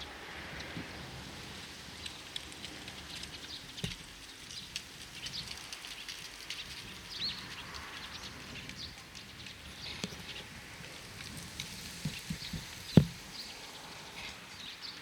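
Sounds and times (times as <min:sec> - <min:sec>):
outdoor background noise: 0:00.0 - 0:15.0
small birds chirping: 0:02.0 - 0:15.0
faint low knocks: 0:12.1 - 0:13.2.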